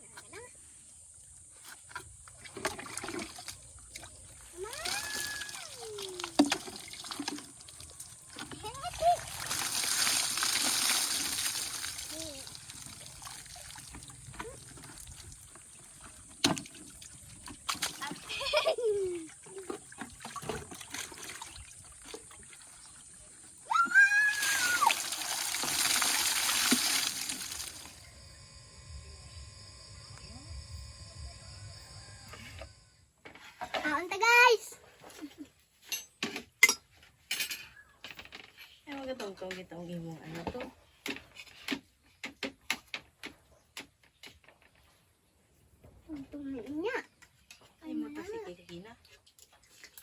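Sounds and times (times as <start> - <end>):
water pouring and splashing: 2.2 - 28.0, 48.9 - 50.0
high cry: 4.6 - 6.0, 23.6 - 25.0.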